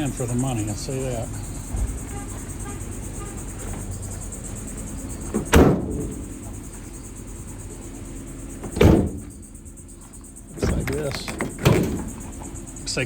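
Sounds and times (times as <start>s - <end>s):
heavy metal van doors slamming: 1.6s - 7.0s, 8.5s - 9.8s, 10.5s - 12.6s.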